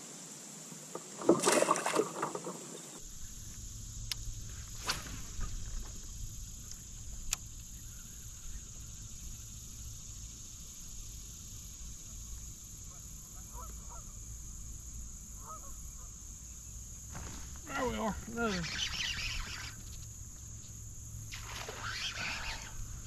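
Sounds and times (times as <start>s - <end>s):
high hiss: 2.7s - 23.0s
distant bird calls: 12.1s - 23.0s.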